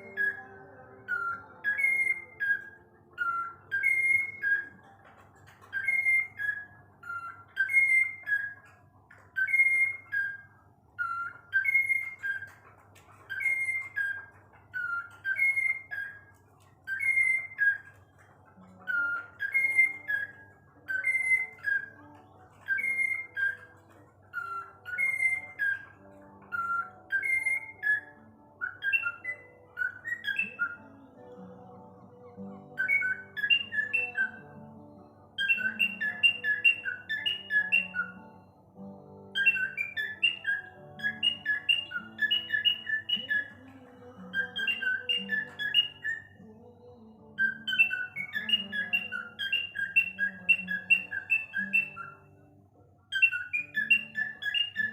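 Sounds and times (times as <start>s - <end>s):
whistled phrase: 0.0s - 4.8s
faint background tones: 0.0s - 54.9s.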